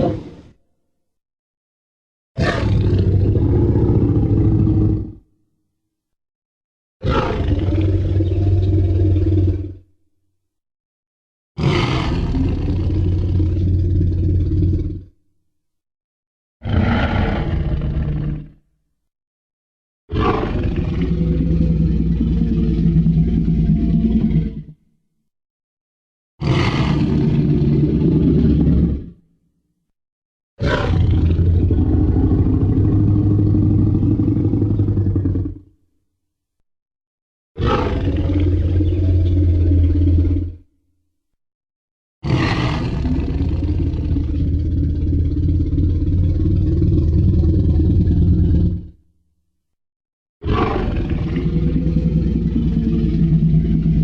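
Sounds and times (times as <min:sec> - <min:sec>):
dinosaur roar: 0:02.4 - 0:05.2, 0:07.0 - 0:09.9, 0:11.6 - 0:15.1, 0:16.6 - 0:18.6, 0:20.1 - 0:24.8, 0:26.4 - 0:29.2, 0:30.6 - 0:35.8, 0:37.6 - 0:40.7, 0:42.2 - 0:49.0, 0:50.4 - 0:54.0.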